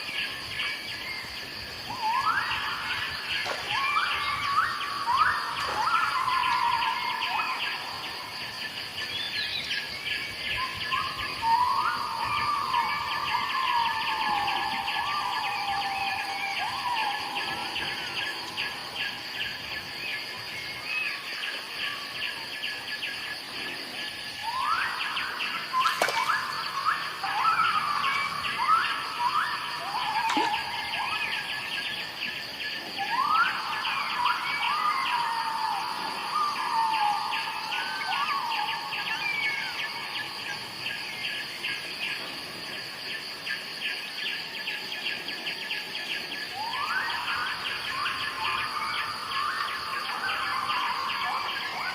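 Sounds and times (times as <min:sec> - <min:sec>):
birds whistling rising calls: 0:00.0 - 0:08.2, 0:09.0 - 0:23.2, 0:24.4 - 0:42.2
insects droning and trilling: 0:00.0 - 0:51.9.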